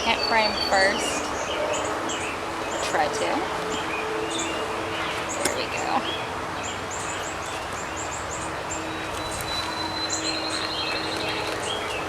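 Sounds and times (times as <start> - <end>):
honey bees humming: 0.0 - 12.0
bird trill: 3.8 - 12.0.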